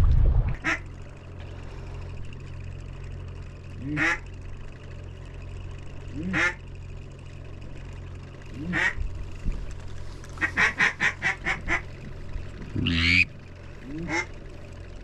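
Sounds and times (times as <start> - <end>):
steady low hum: 0.0 - 15.0
duck quacking: 0.6 - 0.8, 3.8 - 4.2, 6.2 - 6.6, 8.6 - 9.0, 10.4 - 11.9, 12.7 - 13.3, 13.9 - 14.4.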